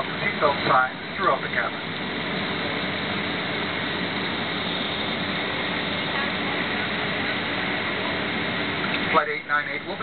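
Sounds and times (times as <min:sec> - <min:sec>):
airplane cabin engine rush: 0:00.0 - 0:10.0
faint high whine: 0:00.0 - 0:10.0.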